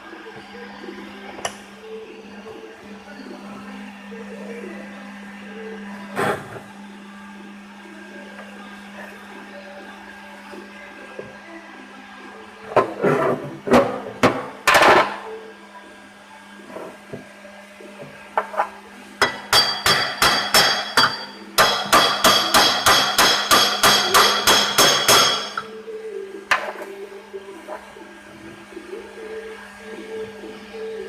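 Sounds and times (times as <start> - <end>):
hammer tapping on metal: 19.2 - 25.7.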